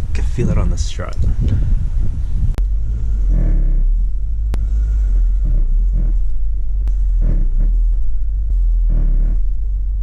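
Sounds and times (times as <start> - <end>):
car low rumble: 0.0 - 10.0
rubbing groans: 2.4 - 10.0.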